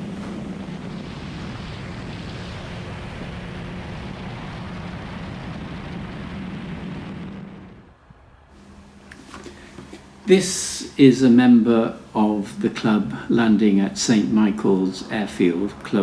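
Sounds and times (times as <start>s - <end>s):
wind on microphone: 0.0s - 8.2s
light aircraft engine droning: 0.0s - 16.0s.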